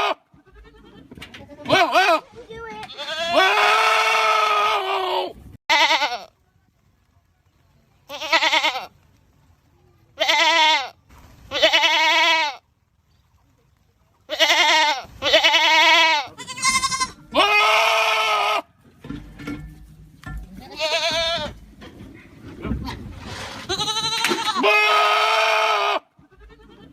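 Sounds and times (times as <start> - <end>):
goats screaming: 3.0 - 6.2, 14.3 - 18.7, 23.6 - 26.9.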